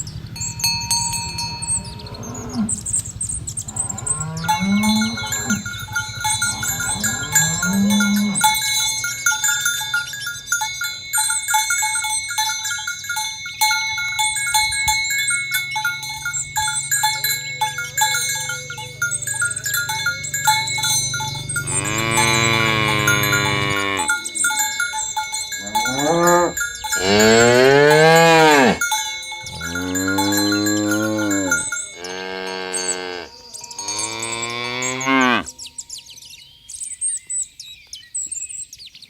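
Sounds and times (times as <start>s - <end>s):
cow bells clinking: 0.0s - 37.4s
cattle mooing: 0.9s - 8.6s, 17.2s - 24.4s, 25.6s - 35.5s.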